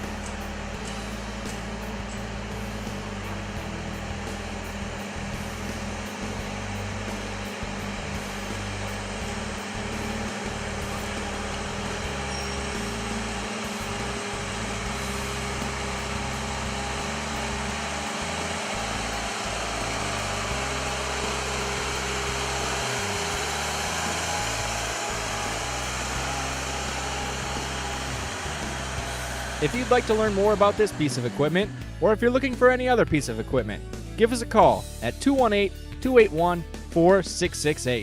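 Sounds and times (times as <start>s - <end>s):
tractor diesel engine running: 0.0s - 34.6s.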